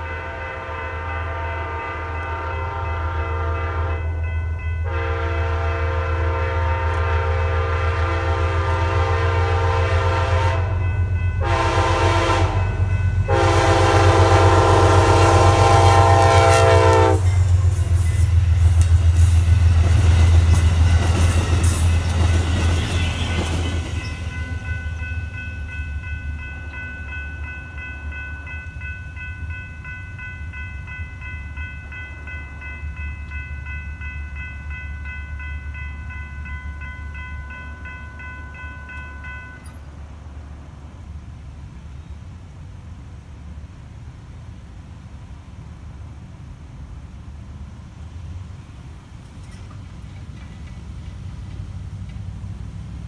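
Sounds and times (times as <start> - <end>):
locomotive horn: 0.0 - 4.2, 4.8 - 17.9, 22.5 - 23.8
crossing bell ringing: 0.0 - 39.9
train rumbling past: 0.0 - 53.0.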